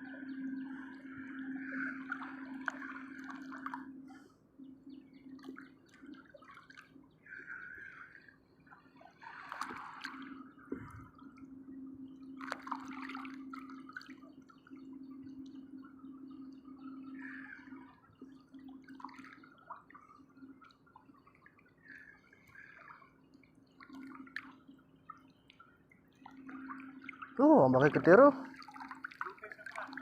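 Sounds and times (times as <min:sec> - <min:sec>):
steady low hum: 0:00.0 - 0:06.4, 0:09.8 - 0:20.6
water drips: 0:00.0 - 0:30.0
sea water sloshing and splashing: 0:00.2 - 0:04.4, 0:05.3 - 0:11.5, 0:12.3 - 0:15.4, 0:16.7 - 0:30.0.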